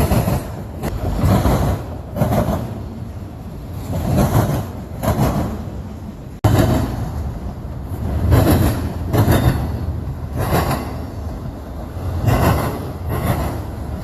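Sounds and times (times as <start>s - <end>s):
freight train rumble: 0.0s - 14.0s
wheels clacking over rail joints: 0.0s - 14.0s.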